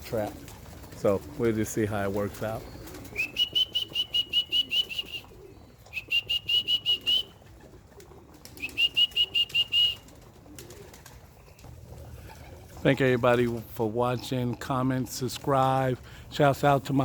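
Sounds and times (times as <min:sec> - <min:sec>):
songbird whistling: 0:02.6 - 0:07.4, 0:08.6 - 0:10.0.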